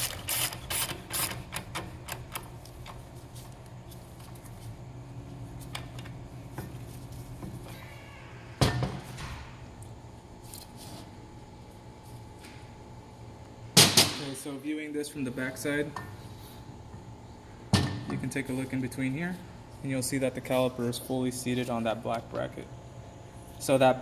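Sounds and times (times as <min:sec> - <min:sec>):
steady low hum: 0:00.0 - 0:24.0
sharp metal clunk: 0:13.8 - 0:14.4.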